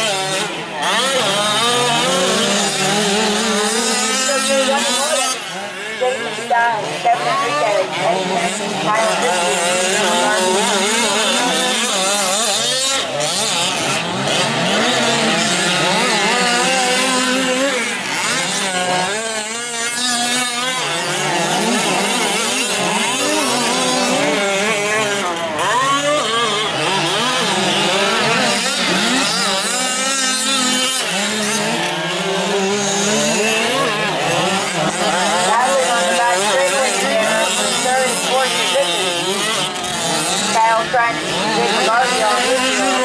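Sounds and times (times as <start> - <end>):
small two-stroke engines racing: 0.0 - 43.0.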